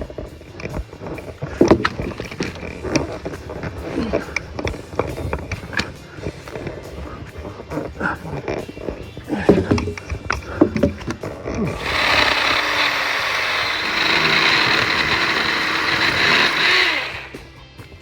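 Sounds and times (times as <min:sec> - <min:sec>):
electric chainsaw cutting wood: 0:00.0 - 0:07.0, 0:09.3 - 0:17.5
knocks: 0:09.4 - 0:11.2.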